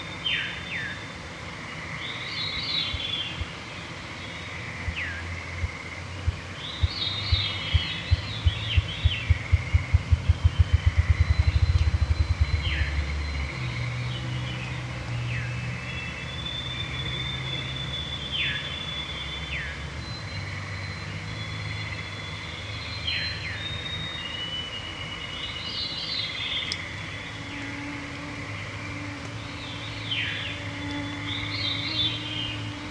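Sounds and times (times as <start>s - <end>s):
low thumping into a whir: 5.6s - 14.1s.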